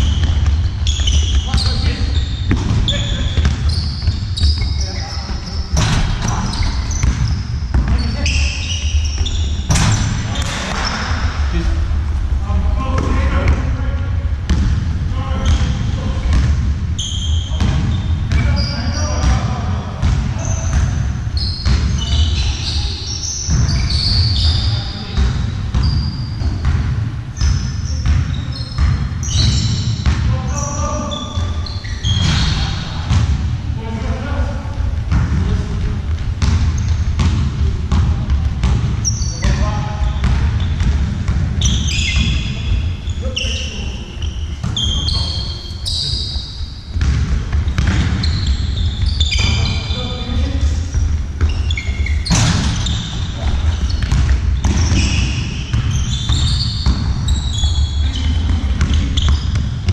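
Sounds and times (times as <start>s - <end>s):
ball bouncing: 0.0s - 11.4s, 14.5s - 18.6s, 23.4s - 30.3s, 34.8s - 42.8s, 46.9s - 49.8s, 50.9s - 59.9s
shoes squeaking on court: 0.0s - 11.6s, 15.4s - 33.3s, 34.9s - 37.5s, 38.4s - 59.9s
players' voices: 0.0s - 59.9s.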